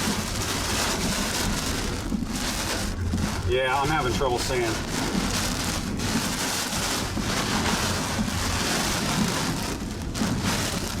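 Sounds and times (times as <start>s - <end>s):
heavy rain beating down: 0.0s - 11.0s
low rumble: 0.0s - 11.0s.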